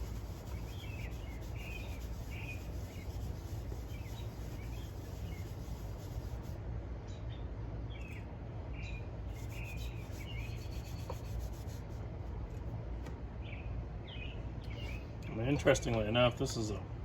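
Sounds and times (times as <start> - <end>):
birds chirping: 0.0 - 6.2, 7.0 - 11.4, 13.4 - 16.0
cloth rubbing metal: 0.0 - 6.6, 9.4 - 12.0.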